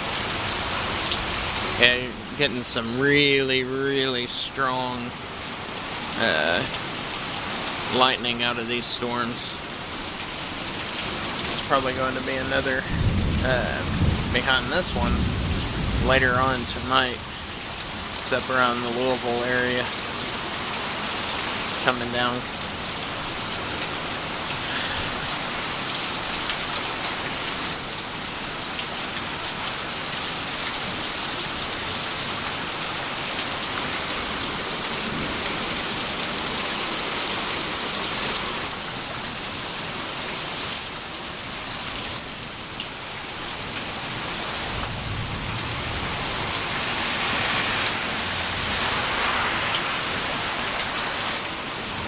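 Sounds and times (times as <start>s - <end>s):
heavy rain falling: 0.0s - 52.0s
thunder rumbling: 11.8s - 18.3s, 43.6s - 52.0s.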